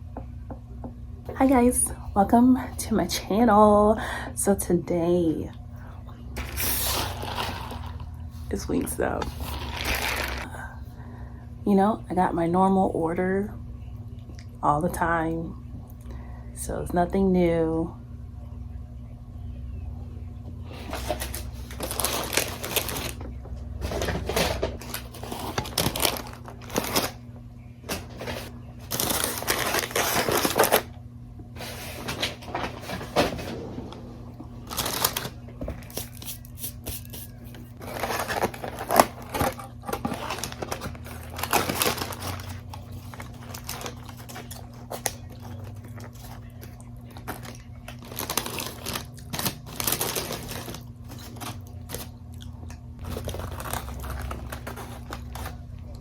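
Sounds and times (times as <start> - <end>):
food packaging rustling and crinkling: 6.4 - 10.7, 20.7 - 27.2, 27.9 - 30.9, 31.5 - 33.6, 34.4 - 52.2, 53.0 - 56.0.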